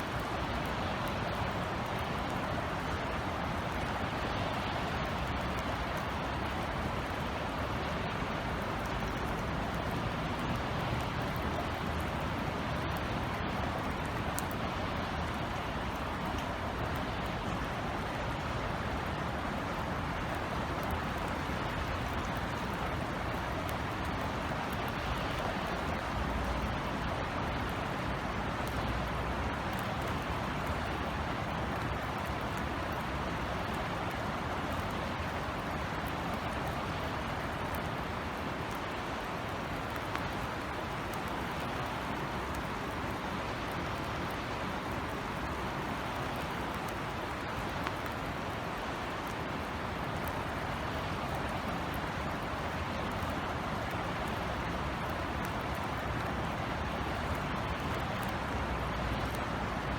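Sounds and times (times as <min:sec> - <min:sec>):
low city rumble: 0:00.0 - 0:59.9
raindrop ticks: 0:00.0 - 0:59.9
steady drizzle hiss: 0:00.0 - 0:59.9.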